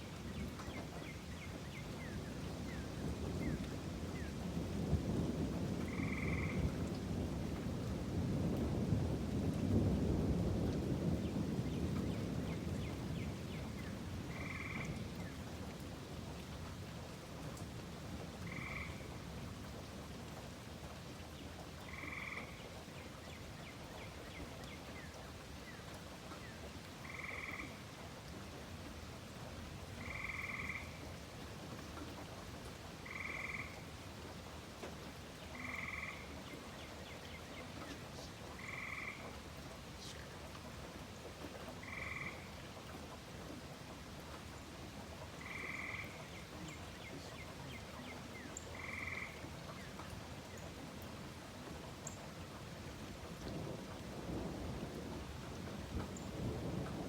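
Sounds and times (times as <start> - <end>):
rain hissing: 30.8 - 57.0
frog trilling: 35.6 - 36.3, 38.6 - 39.2, 45.4 - 46.2, 48.7 - 49.4.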